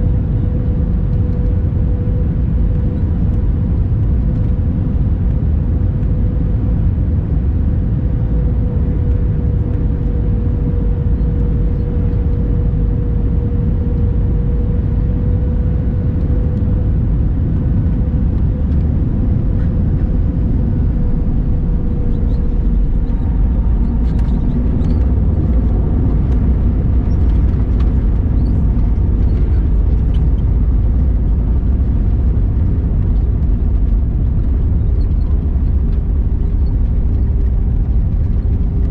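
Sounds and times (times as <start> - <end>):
airliner cabin rumble: 0.0 - 38.9
faint rattles and clicks: 22.0 - 38.9.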